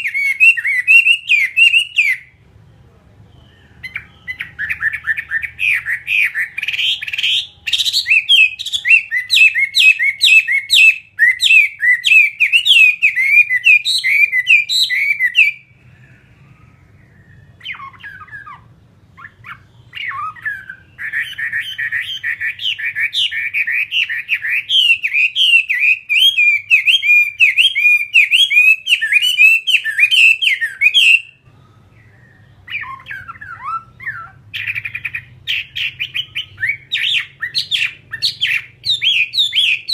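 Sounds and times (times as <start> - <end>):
bird singing rapid phrases: 0.0 - 39.9.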